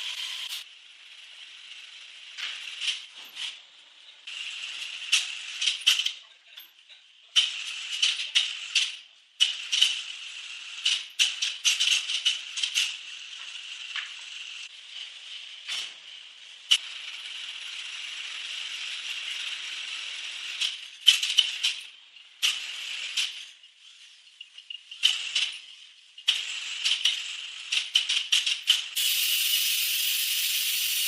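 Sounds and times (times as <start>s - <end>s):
woodworking tool cutting wood: 0.0s - 0.6s
sharp clicks and rattles: 16.7s - 31.0s.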